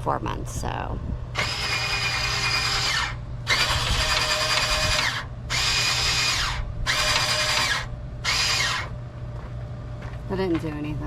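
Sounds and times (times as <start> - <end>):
power drill running: 1.3 - 8.9.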